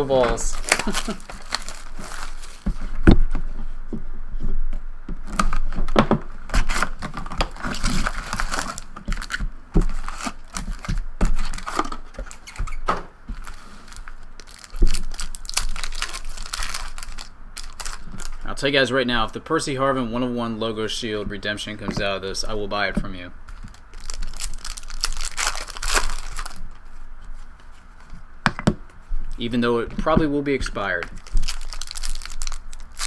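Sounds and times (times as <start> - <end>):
packaging being torn open: 0.5 - 2.6, 6.5 - 12.8, 13.4 - 18.4, 23.6 - 26.6, 31.1 - 33.0.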